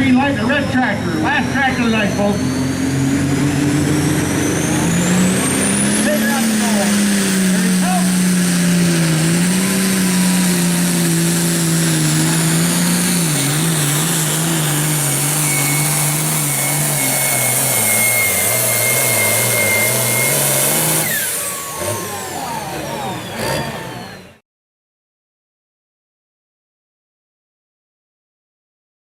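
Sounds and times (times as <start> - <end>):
diesel engine at full throttle: 0.0 - 24.4
high turbo whine: 0.0 - 24.4
falling whistles: 15.3 - 21.3.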